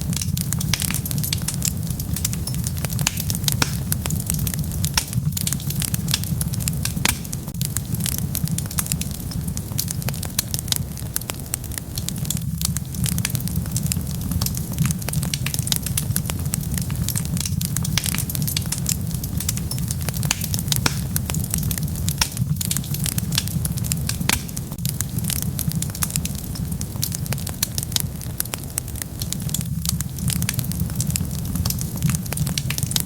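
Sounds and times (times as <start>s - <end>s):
fire crackling and popping: 0.0s - 33.0s
low rumble of flames: 0.0s - 33.0s.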